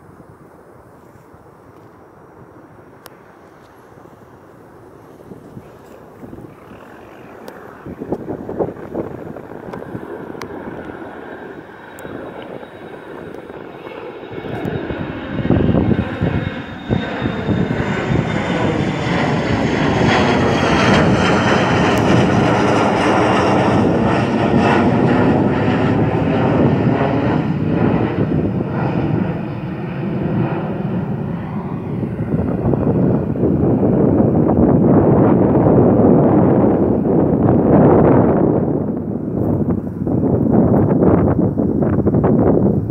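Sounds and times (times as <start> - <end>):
jet engines roaring: 0.0 - 42.9
thin falling whine: 2.9 - 34.2.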